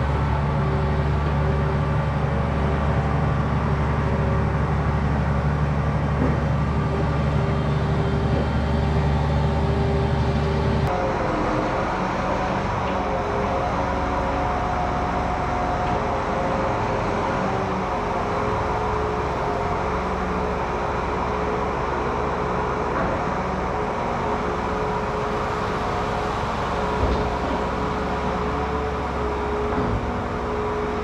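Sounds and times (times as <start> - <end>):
tractor engine under load: 0.0 - 31.0
thump: 6.2 - 6.5, 27.0 - 27.6.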